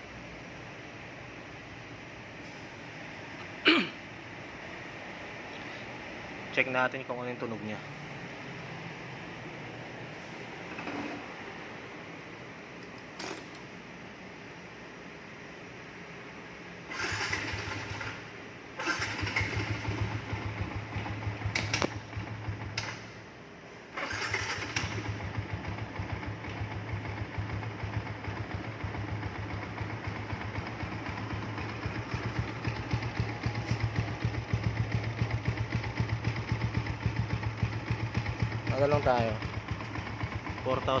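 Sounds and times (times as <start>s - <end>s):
motorcycle engine starting and idling: 10.4s - 12.1s, 12.8s - 13.8s, 16.8s - 41.0s.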